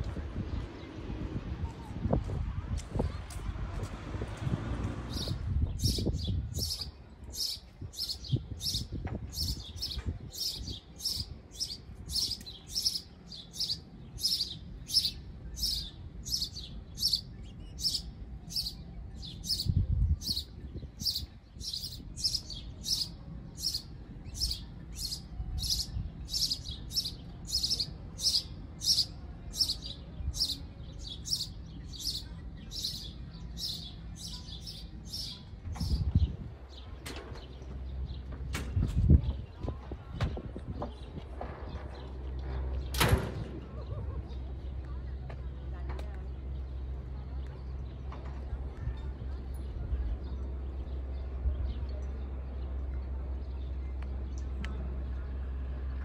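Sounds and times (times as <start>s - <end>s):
bird chirping: 5.1s - 38.3s.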